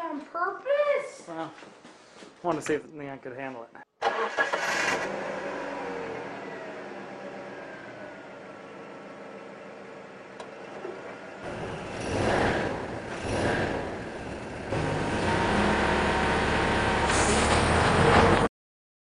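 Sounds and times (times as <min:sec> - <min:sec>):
car engine revving hard: 0:04.3 - 0:07.8, 0:11.4 - 0:18.5.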